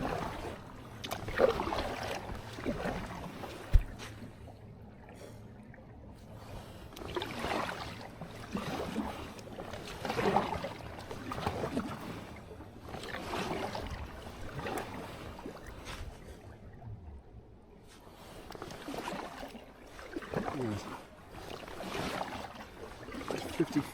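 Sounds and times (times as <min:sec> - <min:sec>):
paddle strokes in water: 0:00.0 - 0:17.1, 0:17.7 - 0:23.9
low steady rumble: 0:16.0 - 0:18.2.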